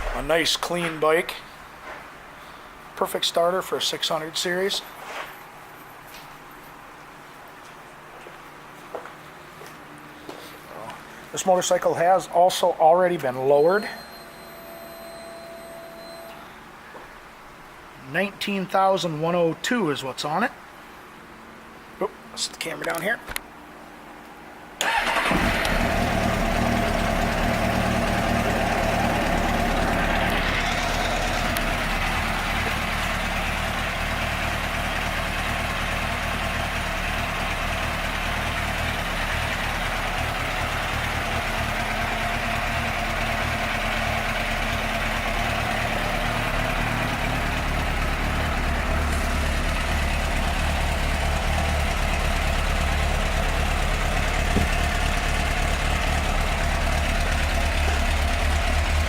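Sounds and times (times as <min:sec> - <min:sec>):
motorcycle engine idling: 0:24.9 - 0:59.0.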